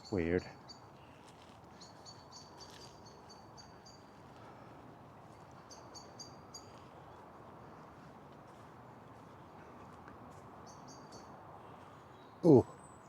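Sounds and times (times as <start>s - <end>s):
bird chirping: 0.0s - 4.5s, 5.3s - 8.6s, 10.6s - 13.0s
outdoor background noise: 0.0s - 13.0s.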